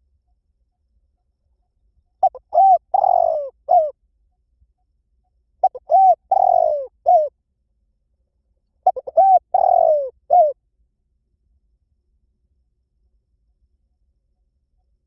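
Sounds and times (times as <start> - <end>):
dove cooing: 2.2 - 4.0, 5.6 - 7.3, 8.8 - 10.6.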